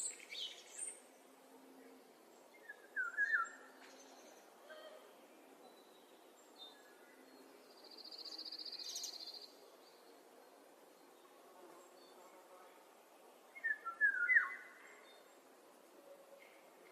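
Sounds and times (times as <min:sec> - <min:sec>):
faint outdoor hiss: 0:00.0 - 0:16.9
bird whistling and trilling: 0:13.7 - 0:14.6.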